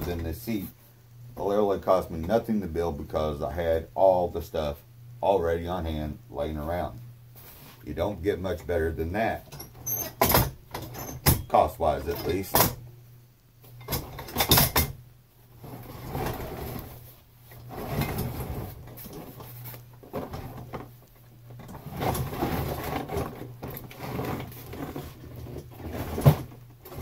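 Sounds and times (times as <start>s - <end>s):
objects clunking and rattling: 9.4s - 12.8s, 13.6s - 15.0s, 15.6s - 27.0s.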